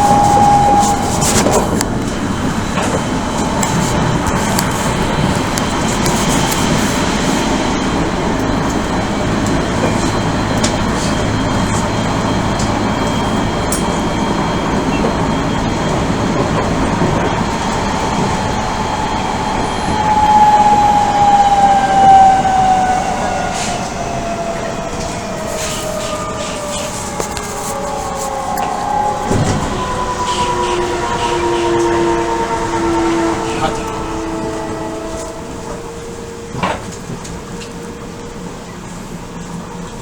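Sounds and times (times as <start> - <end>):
wheel and track noise: 0.0 - 40.0.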